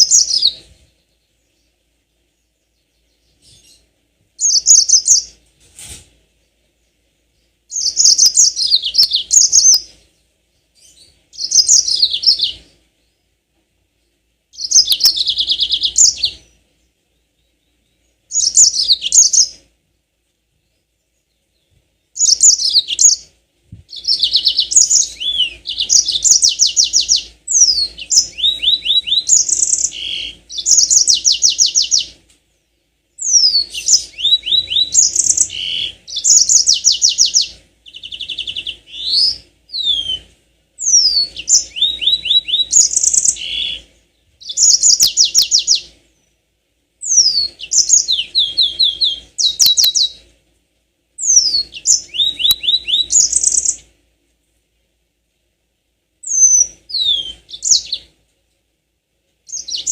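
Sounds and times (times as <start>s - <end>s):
canary singing trills: 0.0s - 5.4s, 6.5s - 13.4s, 14.5s - 19.7s, 20.6s - 46.4s, 47.0s - 50.3s, 51.2s - 53.9s, 56.2s - 58.2s, 59.5s - 59.9s.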